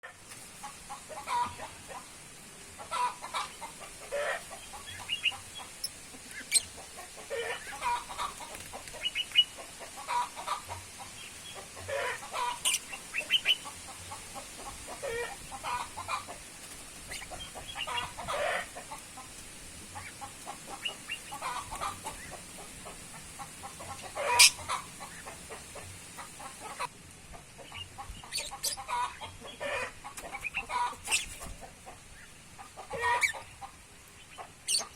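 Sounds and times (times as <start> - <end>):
birds clucking: 0.0 - 34.9
sharp bird calls: 24.1 - 25.4.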